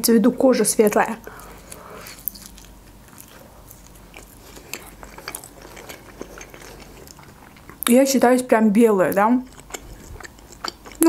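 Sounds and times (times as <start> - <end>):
chewing fried dumpling: 0.7 - 7.9, 9.1 - 11.0.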